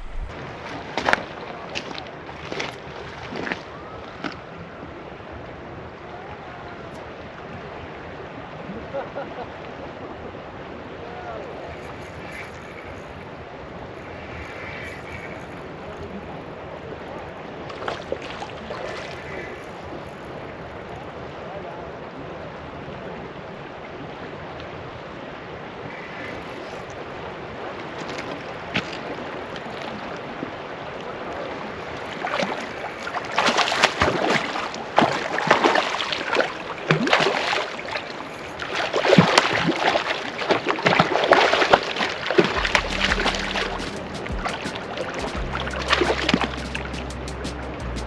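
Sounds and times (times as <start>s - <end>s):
river water running: 0.0s - 48.0s
loud irregular splashing: 32.1s - 48.0s.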